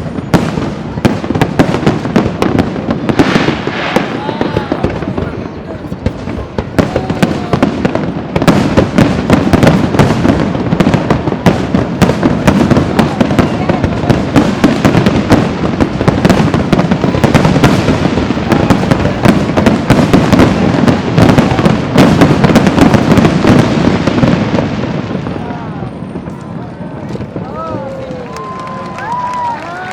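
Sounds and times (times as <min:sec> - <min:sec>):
rumbling firework booms: 0:00.0 - 0:28.2
fireworks cracks and bangs: 0:00.0 - 0:29.9.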